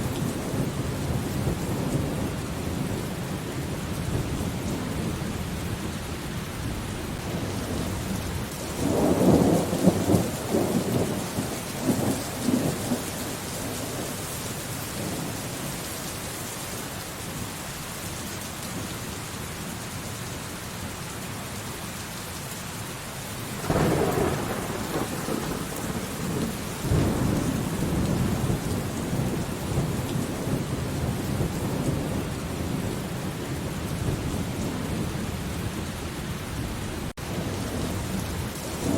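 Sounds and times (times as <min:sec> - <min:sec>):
steady rain: 0:00.0 - 0:38.9
rolling thunder: 0:07.2 - 0:14.1, 0:23.6 - 0:38.9.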